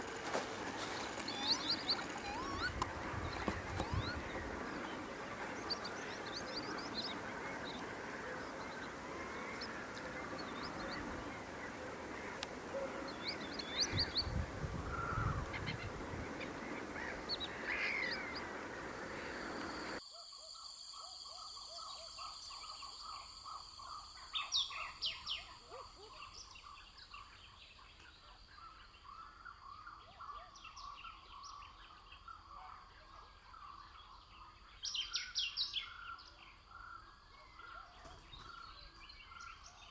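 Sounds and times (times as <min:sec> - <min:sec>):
steady background hiss: 0:00.0 - 0:20.0
wild birds chirping: 0:00.0 - 0:39.9.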